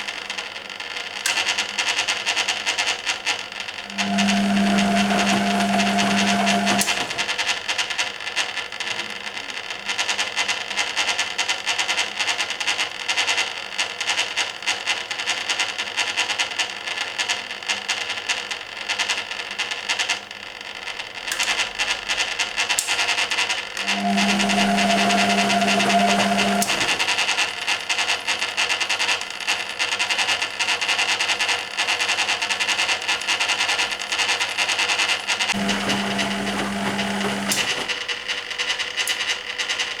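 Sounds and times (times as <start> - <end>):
washing machine motor hum: 3.7 - 7.5, 22.3 - 28.5, 32.6 - 38.4.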